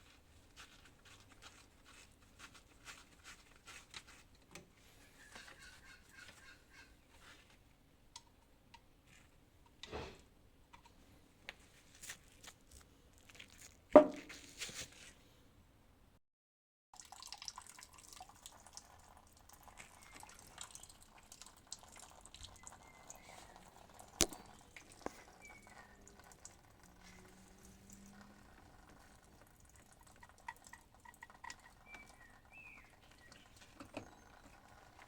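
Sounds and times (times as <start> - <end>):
knock: 14.0 - 14.3.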